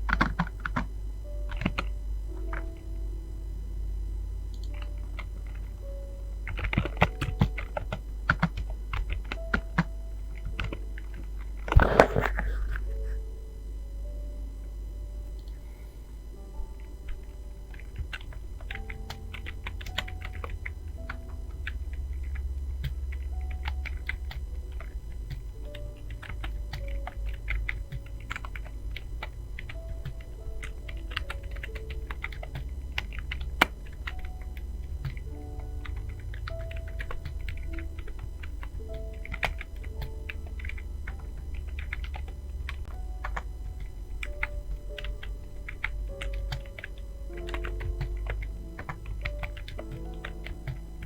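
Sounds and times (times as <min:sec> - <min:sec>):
steady low hum: 0:00.0 - 0:51.0
typing on computer keyboard: 0:17.2 - 0:51.0.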